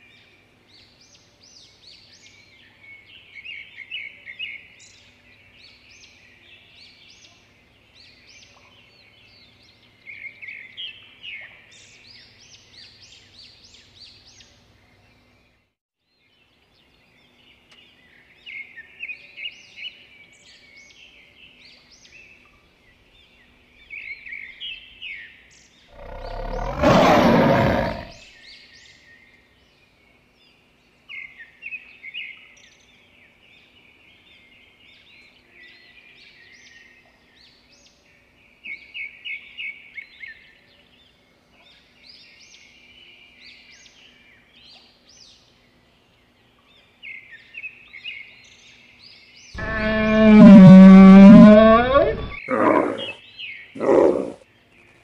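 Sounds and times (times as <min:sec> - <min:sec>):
birds chirping and twittering: 0:16.2 - 0:55.0
lion roaring: 0:25.9 - 0:28.2, 0:49.6 - 0:53.2, 0:53.8 - 0:54.4.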